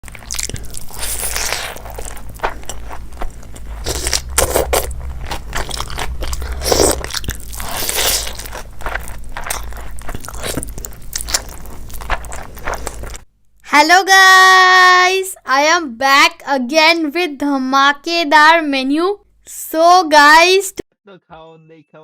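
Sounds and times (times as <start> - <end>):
person chewing crunchy food: 0.0 - 13.2
steady low hum: 0.0 - 13.6.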